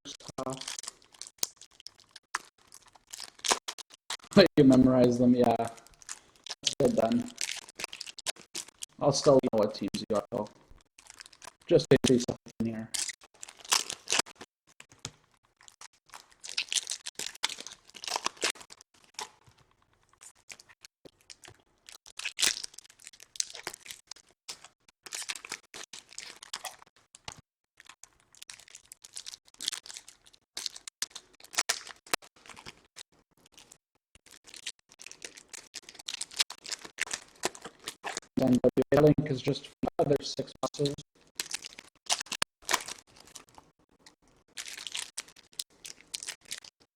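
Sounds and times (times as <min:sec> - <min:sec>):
packaging tearing and crinkling: 0:00.1 - 0:04.4, 0:05.6 - 0:09.0, 0:13.0 - 0:19.6, 0:20.2 - 0:38.3, 0:40.8 - 0:43.6, 0:44.5 - 0:46.9.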